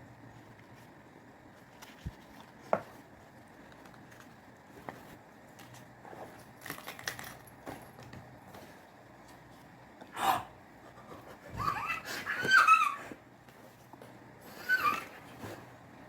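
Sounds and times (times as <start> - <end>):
objects clicking and rattling: 3.7 - 8.3
dog whining: 11.5 - 13.2, 14.5 - 15.4.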